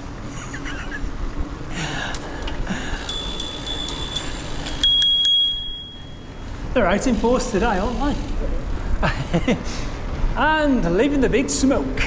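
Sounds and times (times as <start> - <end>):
bicycle bell ringing: 3.0 - 8.2.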